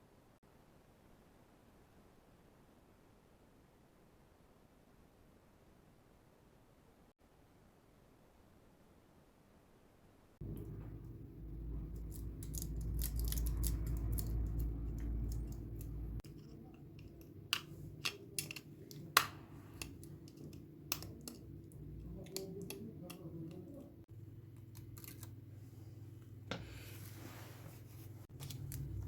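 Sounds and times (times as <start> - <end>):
low hum of bench equipment: 10.4 - 29.0
hand tools clicking and tapping: 11.9 - 23.8.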